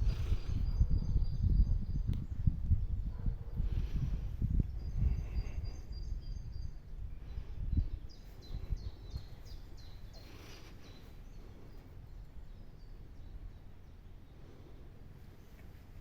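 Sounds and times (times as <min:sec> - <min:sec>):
low outdoor rumble: 0:00.0 - 0:16.0
small bird chirping: 0:04.5 - 0:14.6.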